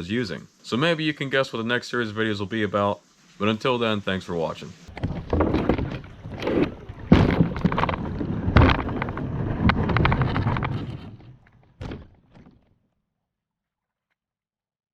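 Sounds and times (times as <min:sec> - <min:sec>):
handling knocks and thuds: 0:04.9 - 0:12.7.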